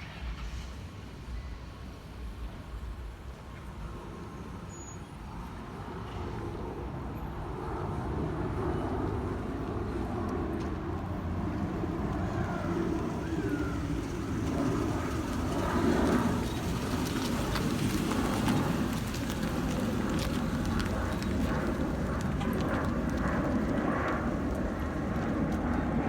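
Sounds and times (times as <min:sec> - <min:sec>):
jet engines rumbling: 0:05.3 - 0:26.0.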